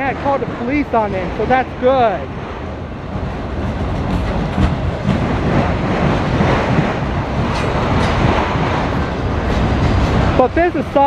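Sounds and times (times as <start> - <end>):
train wheels rumbling on rail: 0.0 - 11.0
wheels clicking over rail joints: 3.1 - 11.0.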